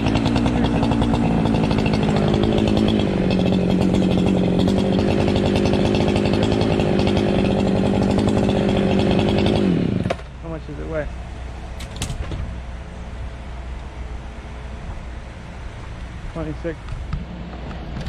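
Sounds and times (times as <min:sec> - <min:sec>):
chainsaw cutting wood: 0:00.0 - 0:10.3, 0:11.8 - 0:12.5.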